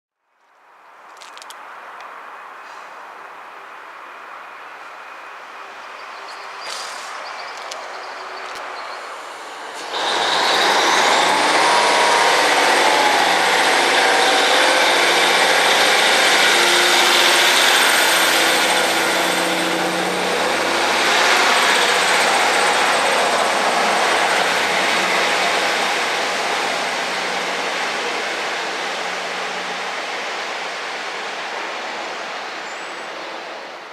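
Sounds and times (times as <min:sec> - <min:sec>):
train passing at speed: 0:02.2 - 0:33.9
high whine rising in pitch: 0:09.6 - 0:31.0.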